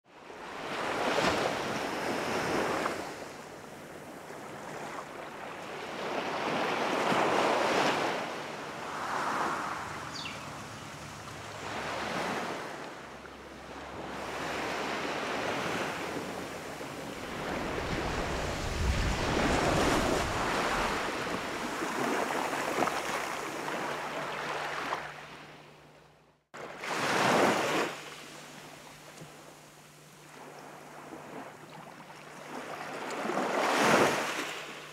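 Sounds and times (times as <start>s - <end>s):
ocean surf breaking on beach: 0.4s - 25.1s.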